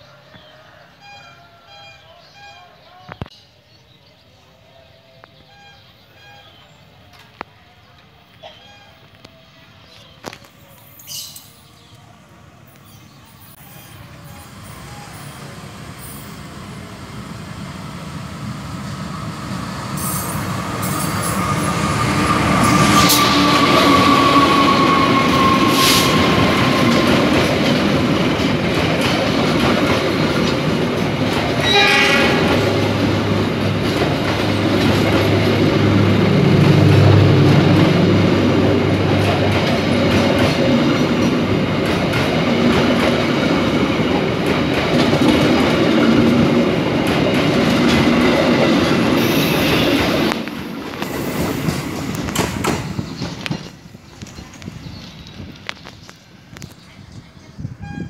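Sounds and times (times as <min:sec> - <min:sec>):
train wheels rumbling: 0:10.5 - 0:58.0
short horn tone: 0:57.8 - 0:58.0.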